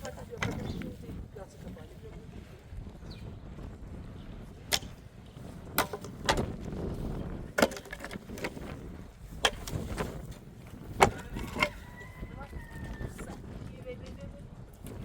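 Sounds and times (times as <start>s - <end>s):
sharp knocks and clatters: 5.8s - 6.6s, 7.6s - 8.8s.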